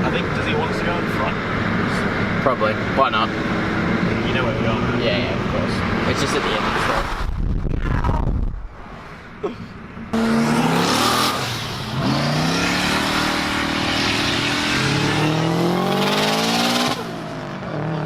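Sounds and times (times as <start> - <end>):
car engine accelerating: 10.1 - 18.0.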